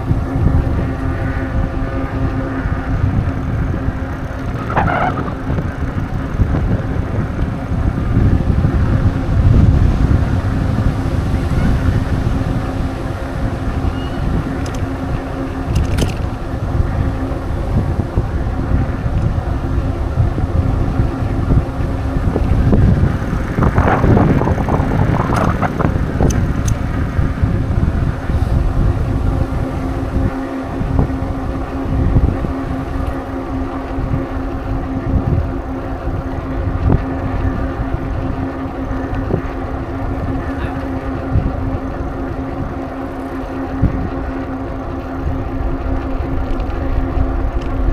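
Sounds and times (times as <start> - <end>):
bicycle rolling: 0.0 - 47.9
steady hum: 0.0 - 47.9
wind buffeting microphone: 0.0 - 47.9
loud rush of air: 21.6 - 32.4.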